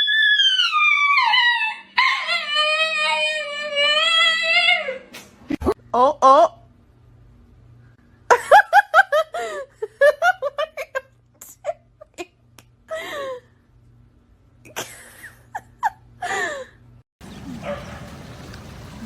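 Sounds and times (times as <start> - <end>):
person laughing: 8.3 - 13.4, 14.7 - 16.7.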